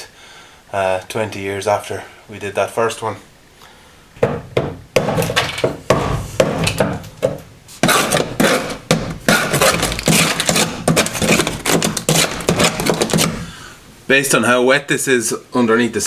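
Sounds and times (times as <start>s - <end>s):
scraper rasping on metal floor: 7.8s - 13.5s.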